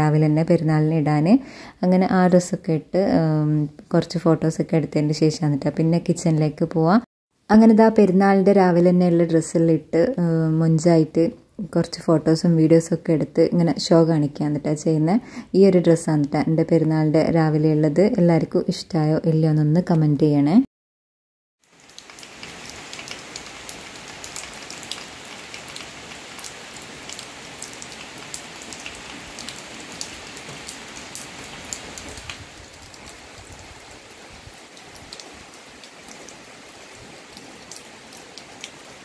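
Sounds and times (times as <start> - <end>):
rain falling: 21.6 - 39.0
raindrops ticking on a surface: 21.6 - 39.0.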